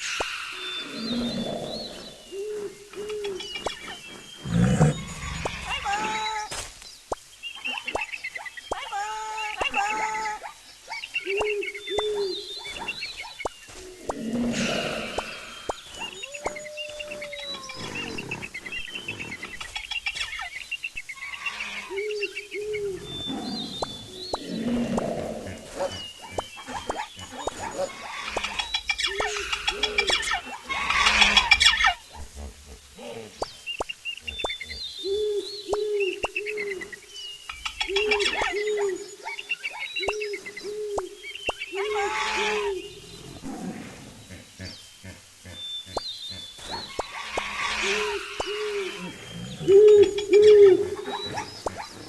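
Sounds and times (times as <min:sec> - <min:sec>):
birds chirping: 0:00.0 - 0:52.0
wild animal calls: 0:21.2 - 0:33.4.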